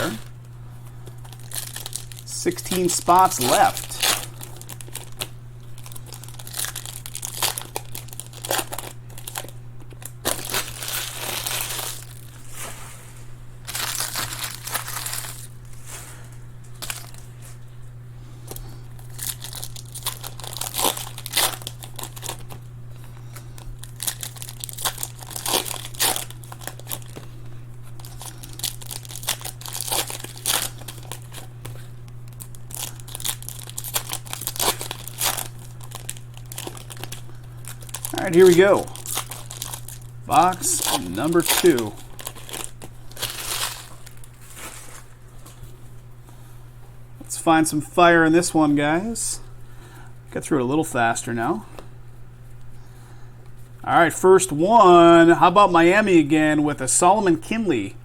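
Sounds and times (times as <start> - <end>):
wrappers crinkling and tearing: 0.0 - 12.8, 13.6 - 16.0, 16.7 - 17.6, 18.5 - 45.6
steady low hum: 0.0 - 58.0.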